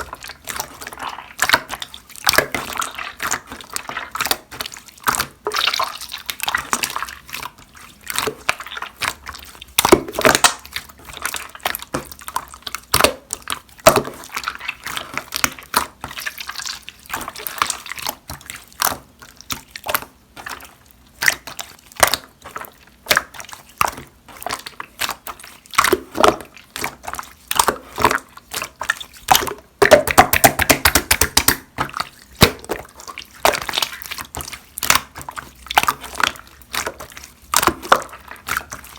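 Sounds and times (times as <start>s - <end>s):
slime clicking and popping: 24.8s - 32.8s.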